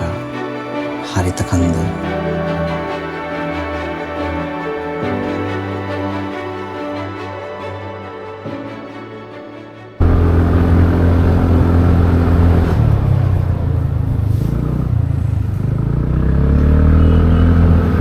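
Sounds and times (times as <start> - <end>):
motorcycle engine drone: 10.0 - 18.0.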